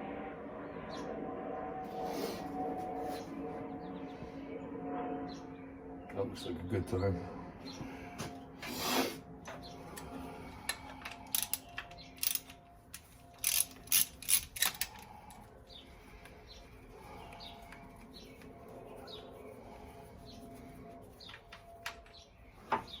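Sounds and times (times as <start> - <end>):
ratchet wrench clicking: 11.2 - 15.1.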